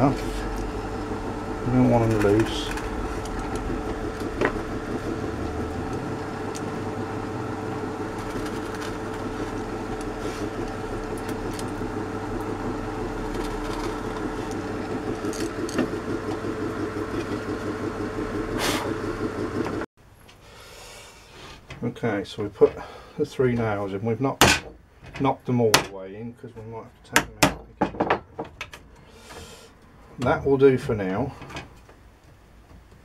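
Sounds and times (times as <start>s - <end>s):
electric motor running: 0.0s - 19.9s.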